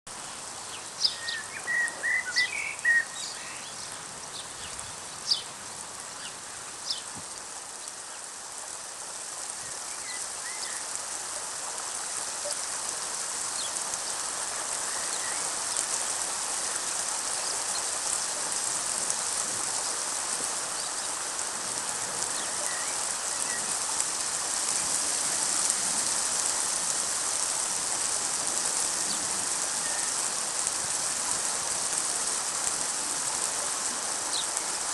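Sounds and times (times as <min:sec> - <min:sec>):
rain falling: 0:00.1 - 0:34.9
bird chirps: 0:01.0 - 0:03.8, 0:22.4 - 0:23.7, 0:29.8 - 0:30.2.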